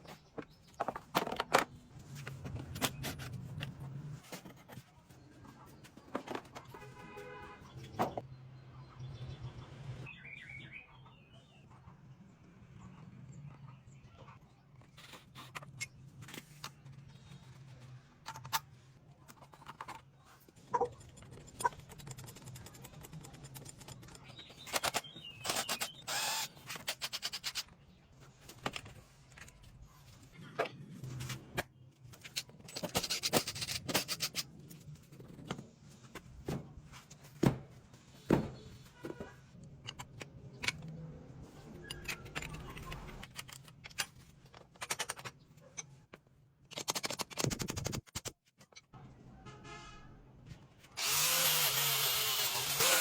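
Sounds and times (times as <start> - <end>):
tools and metal parts clinking: 41.6 - 46.0.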